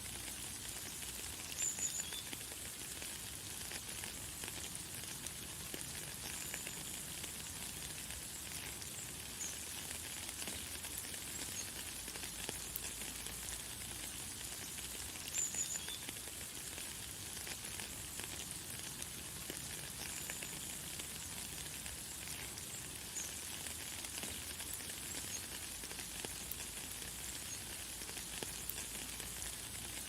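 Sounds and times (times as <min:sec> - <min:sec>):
light rain pattering: 0:00.0 - 0:30.0.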